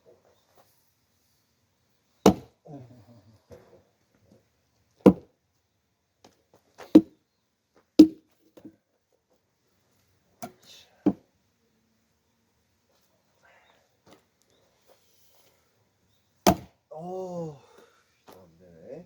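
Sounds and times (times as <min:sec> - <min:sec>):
axe striking firewood log: 0:02.2 - 0:02.6, 0:05.0 - 0:05.3, 0:06.8 - 0:07.2, 0:08.0 - 0:08.3, 0:16.4 - 0:16.8.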